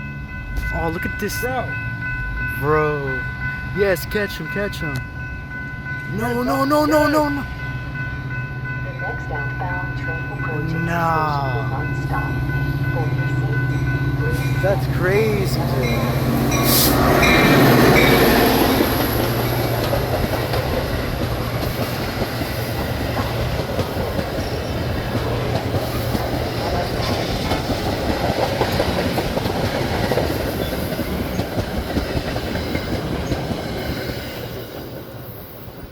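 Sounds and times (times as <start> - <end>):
train wheels clattering over rails: 14.6 - 35.8.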